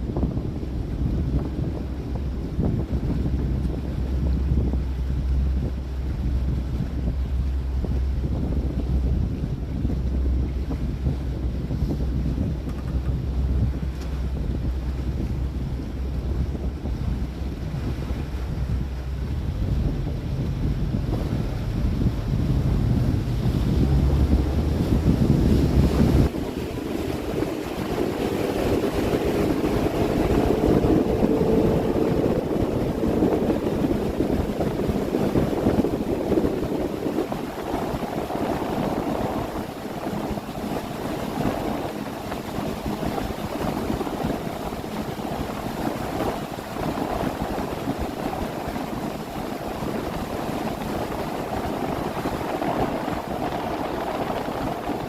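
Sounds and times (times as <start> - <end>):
boat motor running: 0.0 - 55.0
water rushing past hull: 0.0 - 55.0
wind buffeting microphone: 0.0 - 55.0
faint rising tone: 28.0 - 34.2.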